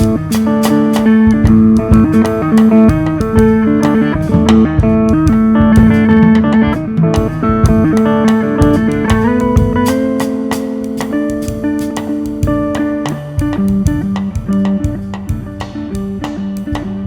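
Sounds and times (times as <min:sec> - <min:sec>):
drums and percussion: 0:00.0 - 0:17.0
guitar picking: 0:00.0 - 0:17.0.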